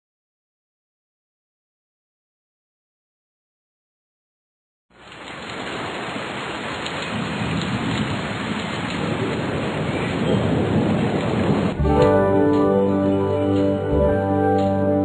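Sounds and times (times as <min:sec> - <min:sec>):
steady rain: 0:04.9 - 0:15.0
rolling thunder: 0:06.9 - 0:12.9.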